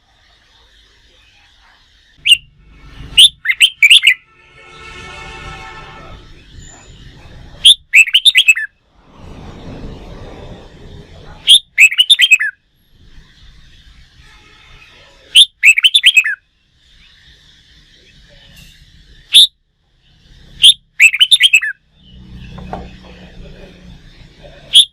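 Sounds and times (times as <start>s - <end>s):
bird warbling song: 0.7s - 4.2s, 6.3s - 8.7s, 11.4s - 14.2s, 15.3s - 23.4s.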